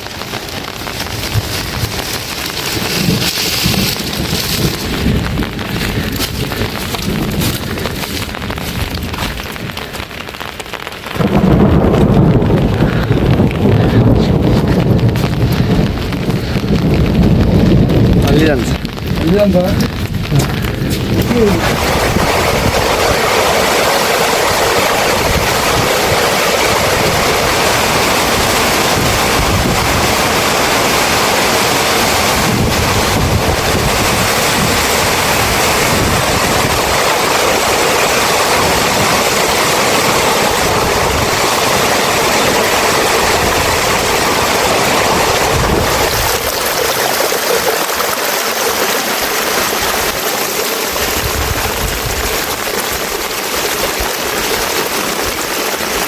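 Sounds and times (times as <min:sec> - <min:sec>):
heavy rain falling: 0:00.0 - 0:56.0
low rumble: 0:11.2 - 0:23.1.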